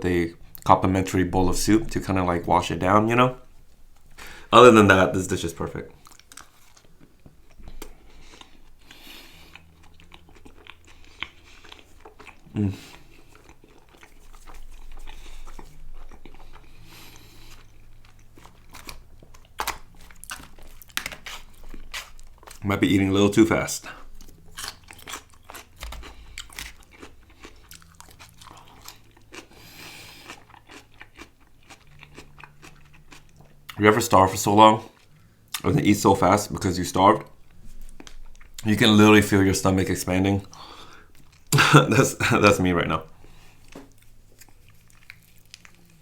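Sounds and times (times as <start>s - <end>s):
person chewing food: 0.4s - 0.7s, 5.9s - 22.6s, 23.8s - 33.8s, 37.3s - 38.8s, 40.4s - 42.4s, 43.1s - 46.0s.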